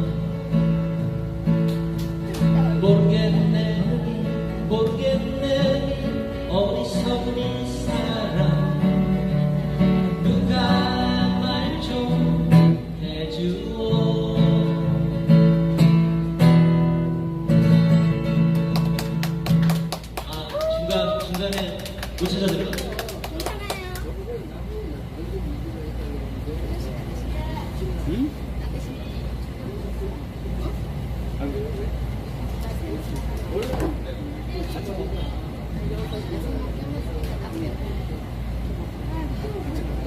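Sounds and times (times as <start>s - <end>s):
guitar melody line: 0.0s - 20.0s
acoustic guitars strumming chords: 0.0s - 20.2s.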